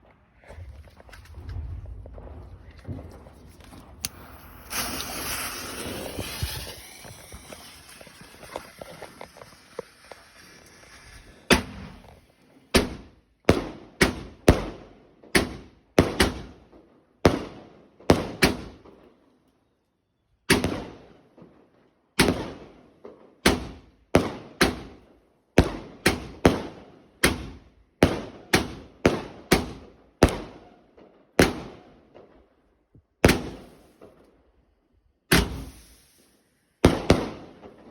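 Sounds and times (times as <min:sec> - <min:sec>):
firework shots firing: 0:01.4 - 0:16.6, 0:17.3 - 0:18.9, 0:20.5 - 0:21.0, 0:22.2 - 0:22.8, 0:25.6 - 0:30.7, 0:31.4 - 0:31.9, 0:33.2 - 0:34.3, 0:35.3 - 0:37.9
firework fuse hissing: 0:03.9 - 0:12.6, 0:35.4 - 0:36.8.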